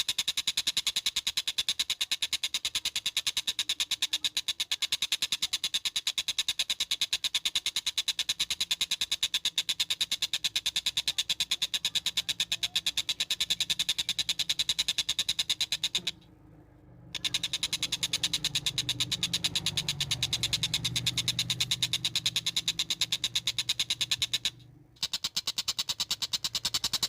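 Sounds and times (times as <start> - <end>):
faint low hum: 15.8 - 25.0.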